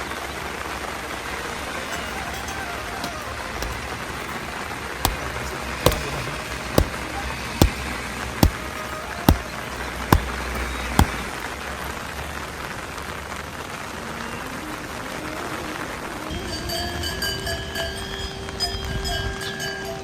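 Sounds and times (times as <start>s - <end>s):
sharp knocks: 1.9s - 11.4s.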